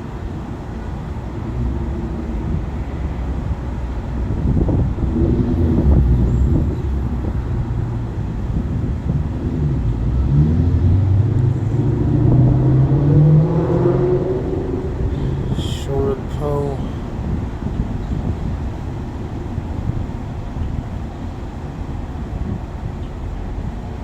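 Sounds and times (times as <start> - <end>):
vehicle engine speeding up: 9.1 - 15.6.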